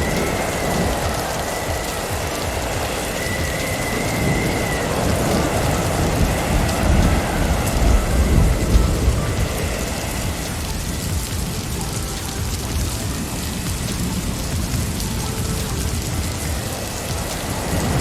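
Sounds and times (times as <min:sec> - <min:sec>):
wind and blowing snow: 0:00.0 - 0:18.0.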